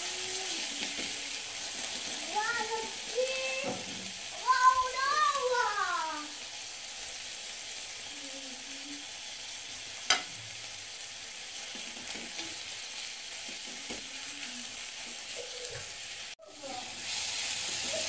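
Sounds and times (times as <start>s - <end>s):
spatula stirring and scraping: 0.0s - 4.1s
food sizzling in oil: 0.0s - 18.0s
spatula tapping on pan: 10.1s - 10.3s.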